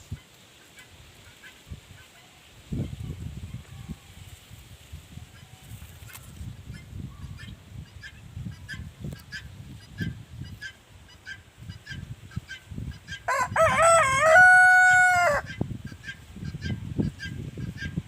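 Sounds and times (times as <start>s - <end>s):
rooster crowing: 13.3s - 15.5s.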